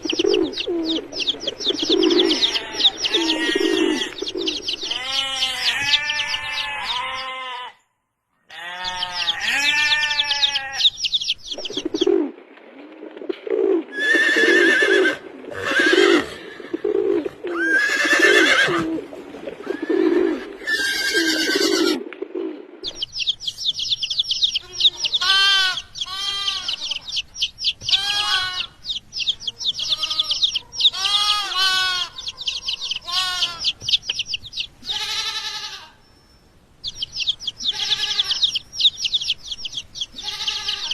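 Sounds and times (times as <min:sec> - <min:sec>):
lower repeated animal calls: 0:01.7 - 0:07.9, 0:27.8 - 0:33.8
farm animals bleating: 0:02.2 - 0:04.2, 0:04.8 - 0:11.0, 0:14.0 - 0:16.8, 0:17.5 - 0:18.9, 0:19.6 - 0:22.0, 0:24.5 - 0:27.2, 0:27.8 - 0:28.8, 0:29.5 - 0:33.8, 0:34.8 - 0:36.0, 0:37.6 - 0:38.6, 0:40.1 - 0:40.9.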